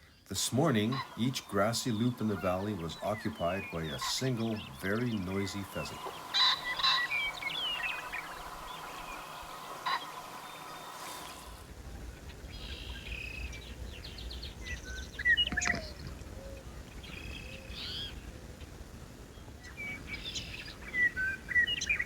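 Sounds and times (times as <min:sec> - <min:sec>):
songbirds chirping and trilling: 0:00.0 - 0:22.0
pheasant harsh crow: 0:00.7 - 0:11.4.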